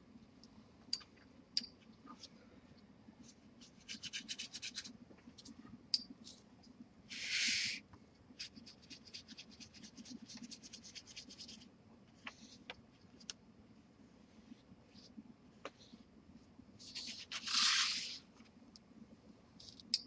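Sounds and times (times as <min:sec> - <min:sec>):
oil pastel scratching on paper: 0:03.2 - 0:04.9, 0:08.4 - 0:11.7, 0:16.8 - 0:18.2.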